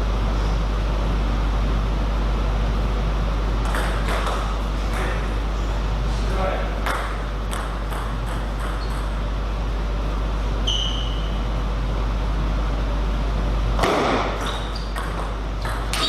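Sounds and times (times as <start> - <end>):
low hum of a hall: 0.0 - 16.0
short high squeak: 10.6 - 11.4, 14.4 - 15.0.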